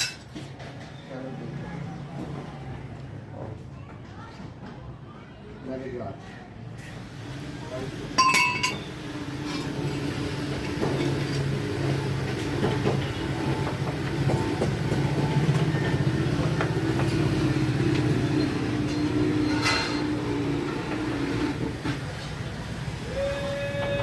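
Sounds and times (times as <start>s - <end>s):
low mechanical hum: 6.8s - 24.0s.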